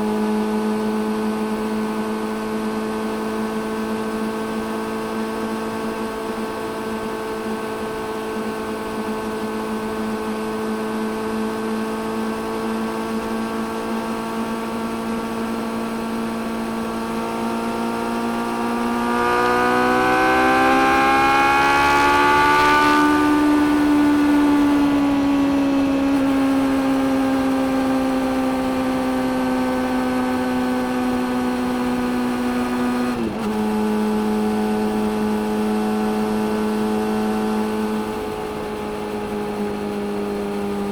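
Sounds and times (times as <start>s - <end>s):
motorcycle engine revving: 12.1s - 40.9s
rush of wind: 12.6s - 35.1s.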